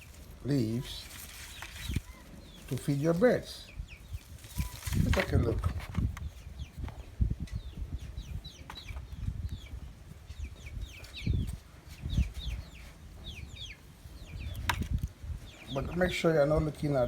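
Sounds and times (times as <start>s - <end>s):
rustling: 0.0s - 3.3s, 4.1s - 6.2s
chicks cheeping: 0.0s - 17.0s.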